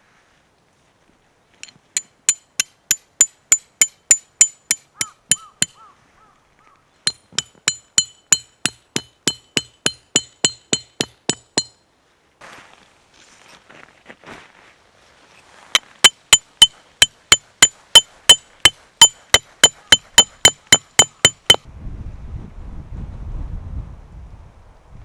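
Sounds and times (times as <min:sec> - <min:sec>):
hammer striking steel tent peg: 0:01.6 - 0:05.8, 0:07.1 - 0:11.8, 0:15.8 - 0:21.7.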